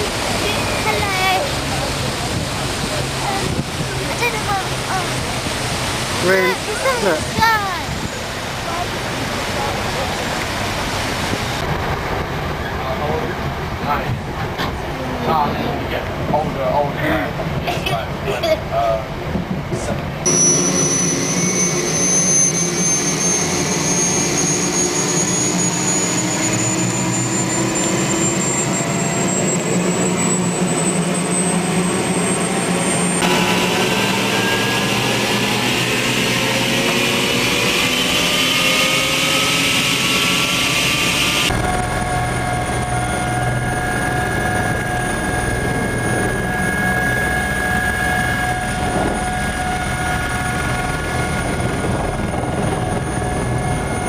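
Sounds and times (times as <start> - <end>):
helicopter turbine and rotor: 0.0 - 54.0.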